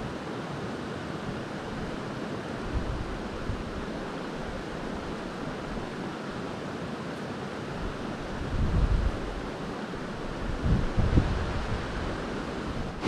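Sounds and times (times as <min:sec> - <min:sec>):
creek water rushing: 0:00.0 - 0:13.0
wind buffeting microphone: 0:02.6 - 0:03.9, 0:07.8 - 0:13.0.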